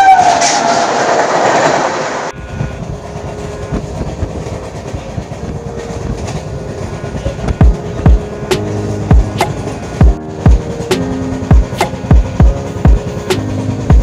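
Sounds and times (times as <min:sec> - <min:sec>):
train horn: 0:00.0 - 0:00.9, 0:02.3 - 0:10.0
train rushing past: 0:00.0 - 0:14.0
train wheels clickety-clack: 0:00.0 - 0:14.0.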